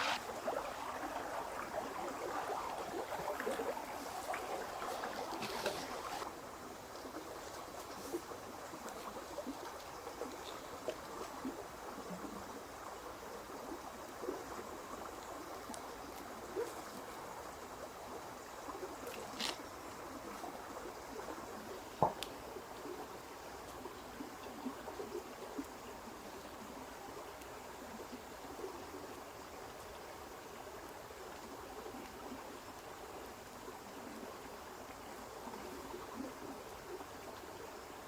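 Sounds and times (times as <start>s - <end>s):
water trickling: 0.0s - 12.9s.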